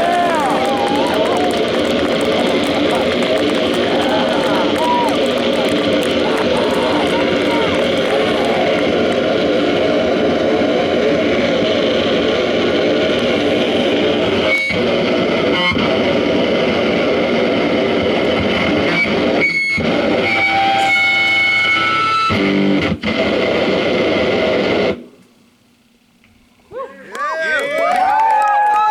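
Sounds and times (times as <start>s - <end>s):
distorted electric guitar: 0.0s - 25.0s
squealing guitar tones: 18.9s - 23.0s.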